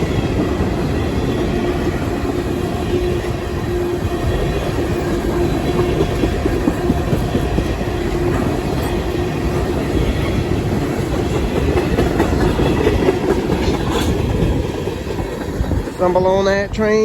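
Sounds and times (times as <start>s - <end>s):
freight train rumbling: 0.0s - 17.0s
train wheels clacking over rail joints: 4.4s - 16.2s.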